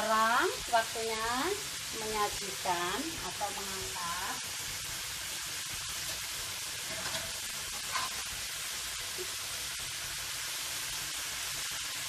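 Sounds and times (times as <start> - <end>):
stir-fry sizzling in oil: 0.0 - 12.0
metal spatula scraping wok: 6.0 - 8.4.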